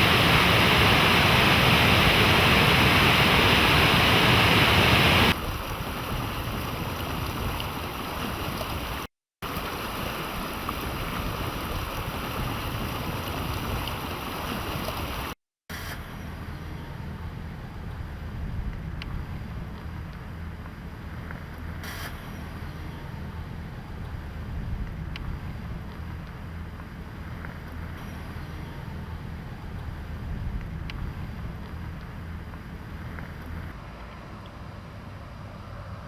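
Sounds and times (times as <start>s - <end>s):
rushing water: 0.0s - 15.4s.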